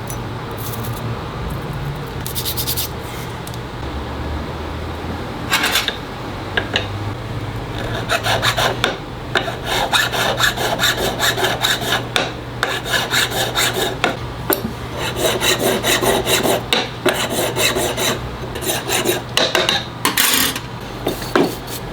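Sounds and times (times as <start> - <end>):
hand file rasping on metal: 7.8 - 14.2, 15.0 - 19.2.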